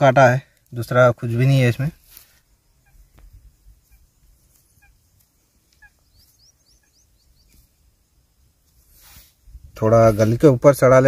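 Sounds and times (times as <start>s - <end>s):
faint bird calls: 2.1s - 7.9s.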